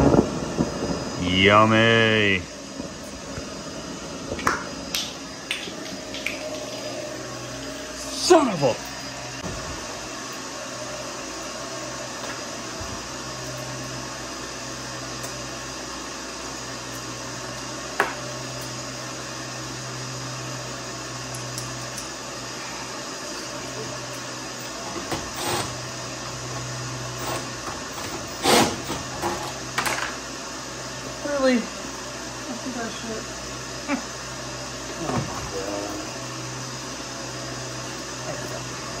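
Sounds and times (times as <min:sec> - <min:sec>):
low pulsing hum: 0:00.0 - 0:13.7
motor drone: 0:00.0 - 0:39.0.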